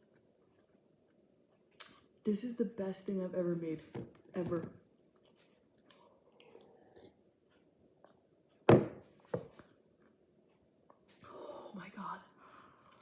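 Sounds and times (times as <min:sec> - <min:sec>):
quiet chewing: 0:00.0 - 0:02.2, 0:05.0 - 0:08.6.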